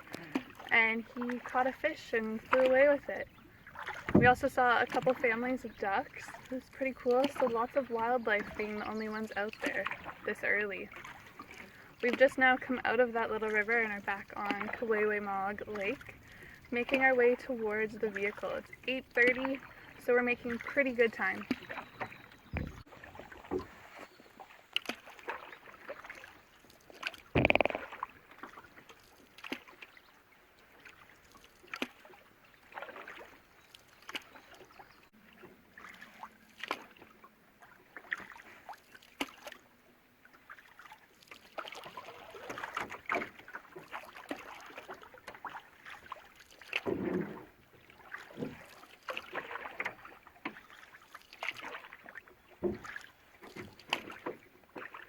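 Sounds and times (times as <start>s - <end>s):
paddles dipping through water: 0.0s - 55.0s
water splashes and drips: 0.0s - 55.0s
loud splash or knock: 27.4s - 28.0s.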